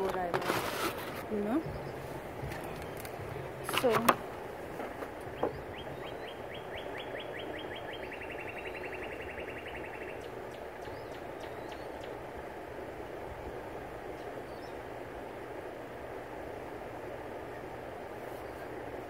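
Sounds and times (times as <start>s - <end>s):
songbird trilling: 1.3s - 4.3s, 5.2s - 12.3s, 14.1s - 14.9s.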